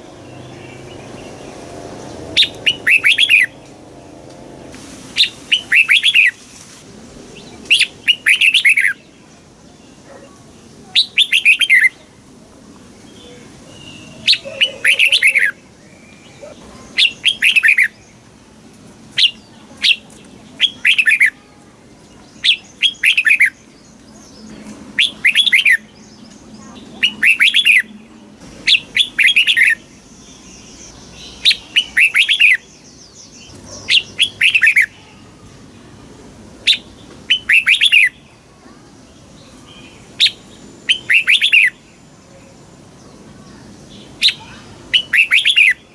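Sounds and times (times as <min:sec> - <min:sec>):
bird warbling song: 0:00.0 - 0:06.5, 0:07.3 - 0:12.0, 0:13.1 - 0:18.3, 0:19.1 - 0:21.4, 0:22.1 - 0:35.0, 0:36.6 - 0:38.3, 0:39.1 - 0:45.9.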